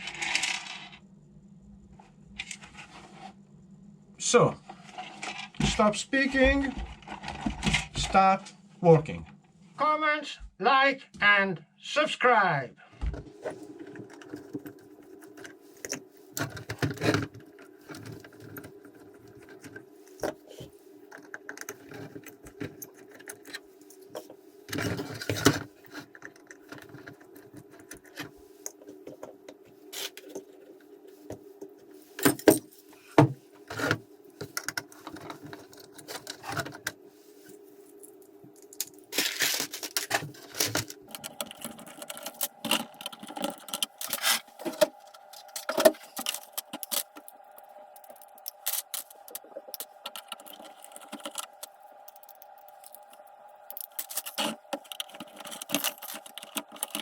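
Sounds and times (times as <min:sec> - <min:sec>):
plastic parts clicking and rattling: 0:13.8 - 0:30.7, 0:32.2 - 0:37.0, 0:38.6 - 0:57.0.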